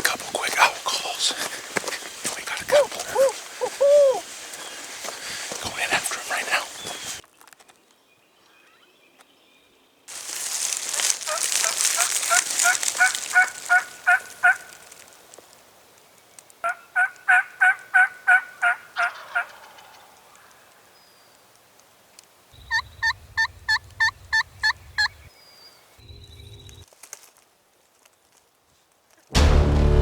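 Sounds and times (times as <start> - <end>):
wild turkey calling: 0.7 - 7.2, 10.5 - 15.0, 16.6 - 20.6, 22.6 - 25.3
low rumble: 22.6 - 25.3, 26.0 - 26.8.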